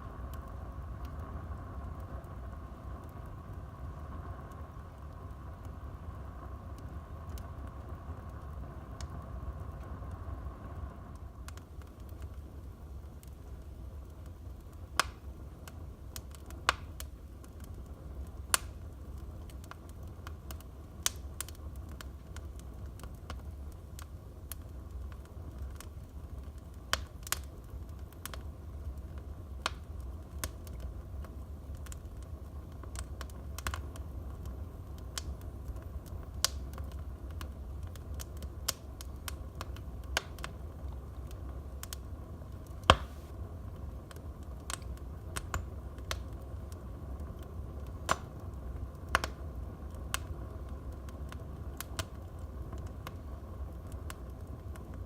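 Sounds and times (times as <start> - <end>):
fire crackling and popping: 0.0 - 55.0
low steady rumble: 0.0 - 55.0.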